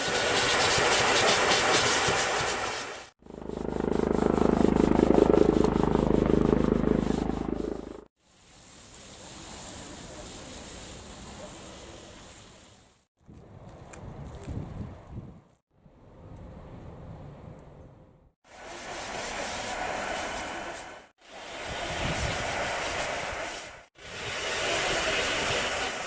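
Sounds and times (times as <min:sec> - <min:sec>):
hiss: 0:00.0 - 0:03.1, 0:08.2 - 0:13.0, 0:18.5 - 0:26.0
steady rushing noise: 0:18.5 - 0:26.0.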